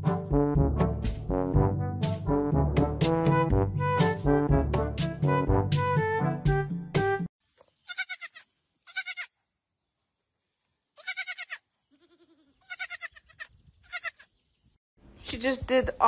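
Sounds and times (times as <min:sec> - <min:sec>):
brass music: 0:00.0 - 0:07.3
goat kid bleating: 0:07.8 - 0:09.4, 0:11.0 - 0:14.3.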